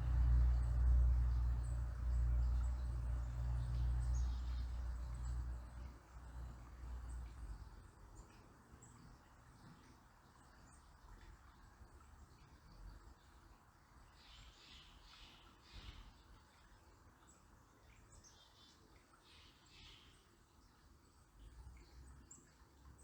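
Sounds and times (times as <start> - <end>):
low rumble: 0.0 - 6.5
river water flowing: 0.0 - 23.0.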